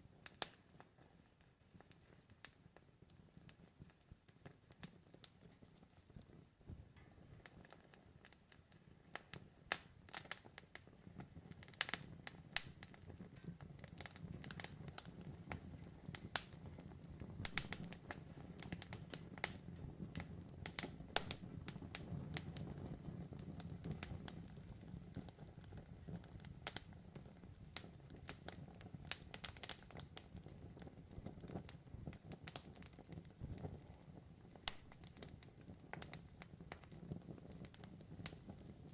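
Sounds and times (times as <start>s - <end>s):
rustle of burning wood: 0.0s - 38.9s
campfire pops and snaps: 0.2s - 38.9s.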